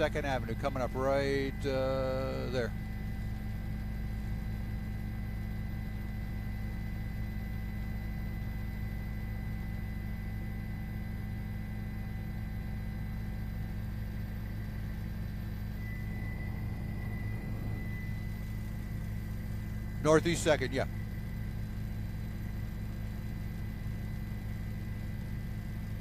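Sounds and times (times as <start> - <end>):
thin high whine: 0.0 - 7.0, 14.6 - 26.0
vehicle drone: 15.6 - 25.2.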